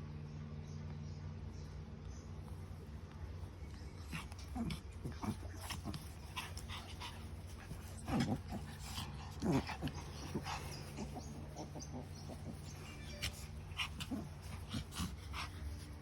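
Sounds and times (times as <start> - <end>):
puppies whining and growling: 4.0 - 16.0.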